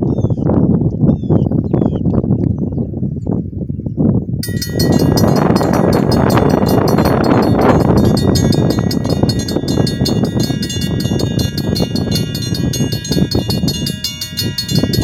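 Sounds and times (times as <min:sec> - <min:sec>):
heavy low rumble: 0:04.4 - 0:15.0
railroad crossing bell dinging: 0:04.4 - 0:15.0.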